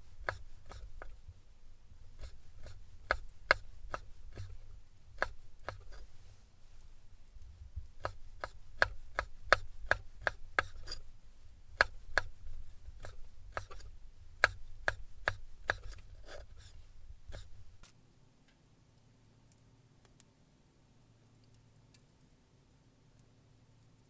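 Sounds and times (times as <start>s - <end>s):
knife chopping on cutting board: 0.2s - 0.8s, 2.2s - 4.5s, 5.2s - 6.0s, 8.0s - 11.0s, 11.8s - 12.3s, 13.0s - 16.4s.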